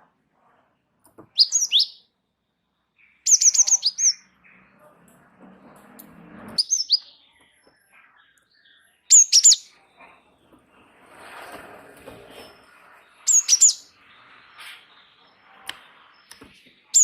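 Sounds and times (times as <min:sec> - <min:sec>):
bird high rapid chirps: 0:01.3 - 0:02.1, 0:03.0 - 0:04.7, 0:06.6 - 0:07.4, 0:08.1 - 0:09.8, 0:13.2 - 0:17.0.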